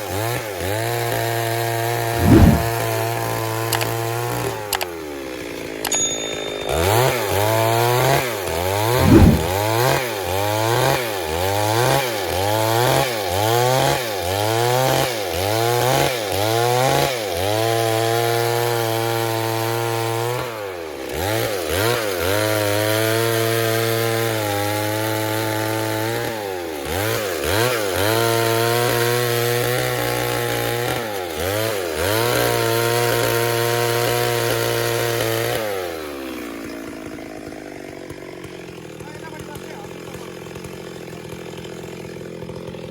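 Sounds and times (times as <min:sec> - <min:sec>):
chainsaw cutting log: 0:16.4 - 0:42.9.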